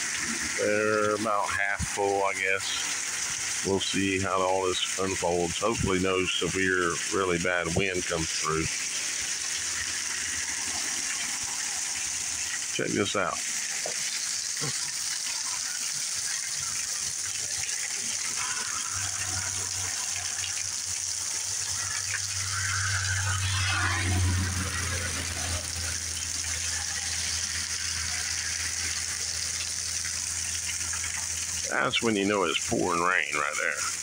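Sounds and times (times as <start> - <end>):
heavy rain pouring: 0.0 - 34.0
low rumble: 22.1 - 26.6.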